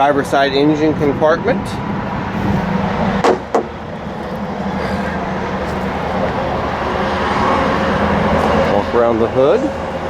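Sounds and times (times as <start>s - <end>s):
engine-like drone: 0.0s - 10.0s.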